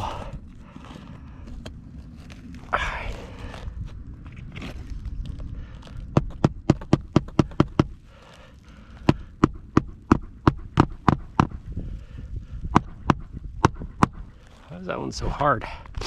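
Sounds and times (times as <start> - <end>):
hammer blows on shingle roof: 6.1 - 8.0, 9.0 - 11.6.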